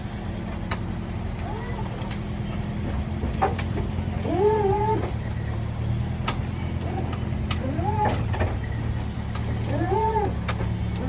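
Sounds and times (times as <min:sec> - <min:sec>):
hydraulic suspension squeaking: 0:00.6 - 0:11.0
sharp clicks: 0:06.2 - 0:08.4.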